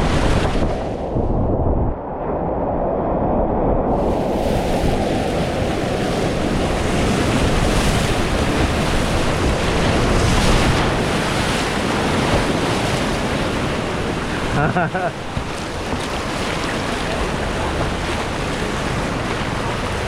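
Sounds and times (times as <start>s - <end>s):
whitewater rushing: 4.0s - 20.0s.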